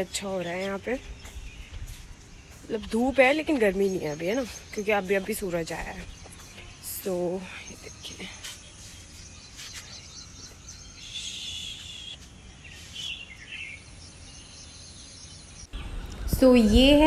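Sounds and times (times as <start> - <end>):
birds chirping: 0.0 - 17.0
low outdoor rumble: 15.7 - 17.0.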